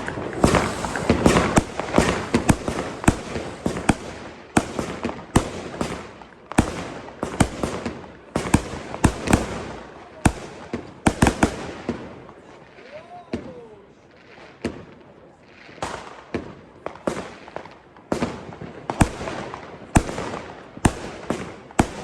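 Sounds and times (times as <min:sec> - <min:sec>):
fireworks banging: 0:00.0 - 0:12.5, 0:15.7 - 0:22.0
fireworks crackling: 0:00.0 - 0:22.0.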